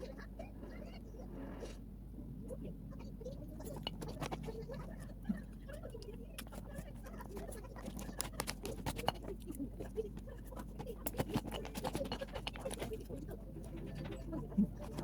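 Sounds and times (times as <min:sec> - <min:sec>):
low steady hum: 0:00.0 - 0:15.0
chewing with wet mouth clicks: 0:03.6 - 0:15.0.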